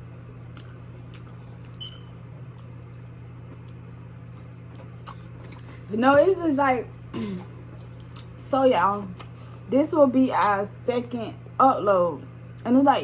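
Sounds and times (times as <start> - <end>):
steady low hum: 0.0 - 13.0
wet chewing and mouth clicks: 0.5 - 5.7.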